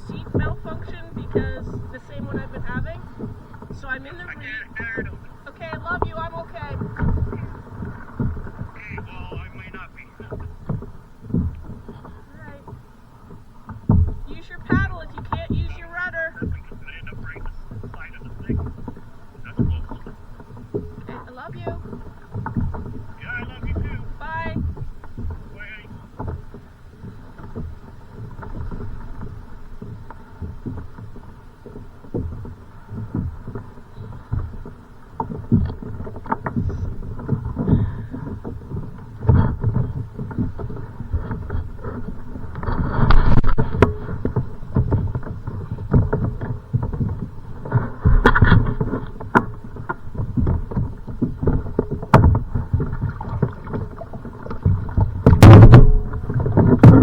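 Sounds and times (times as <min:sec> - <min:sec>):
knocks on boat: 0:00.0 - 0:57.0
water slapping against kayak hull: 0:00.0 - 0:57.0.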